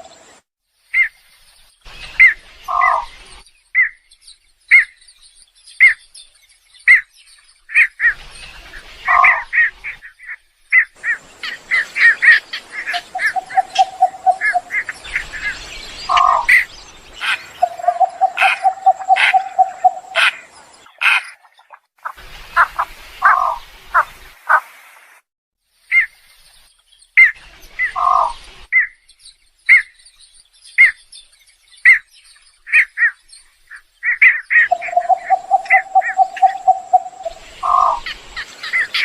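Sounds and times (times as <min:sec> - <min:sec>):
bird chirps: 0:00.0 - 0:24.6, 0:25.8 - 0:39.0
bird squawks: 0:02.2 - 0:03.1, 0:09.0 - 0:24.7, 0:27.2 - 0:28.9, 0:32.7 - 0:39.0.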